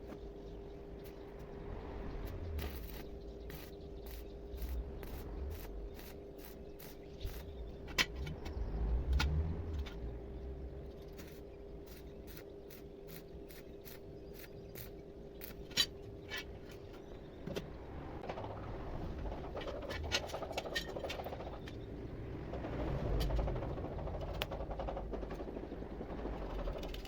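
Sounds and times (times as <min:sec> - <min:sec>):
steady hum: 0:00.0 - 0:27.0
regular mechanical clicking: 0:02.1 - 0:27.0.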